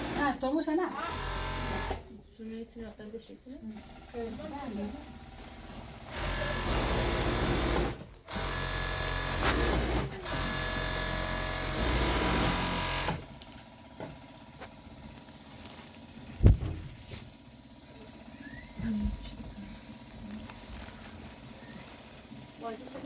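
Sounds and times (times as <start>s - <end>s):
sewing machine stitching: 0.0s - 2.1s, 3.7s - 13.4s.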